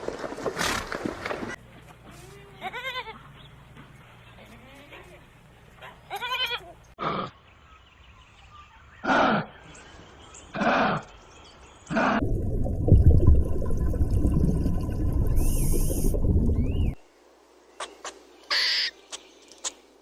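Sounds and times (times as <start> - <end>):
wavering animal bleat: 2.1 - 3.3, 6.1 - 6.8.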